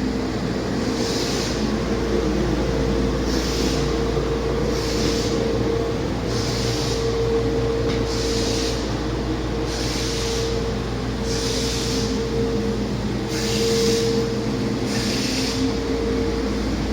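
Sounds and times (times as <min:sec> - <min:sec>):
truck diesel engine running: 0:00.0 - 0:16.9
hiss: 0:00.9 - 0:01.8, 0:03.3 - 0:04.0, 0:04.7 - 0:05.5, 0:06.3 - 0:07.2, 0:08.1 - 0:09.0, 0:09.7 - 0:10.6, 0:11.3 - 0:12.2, 0:14.9 - 0:15.6.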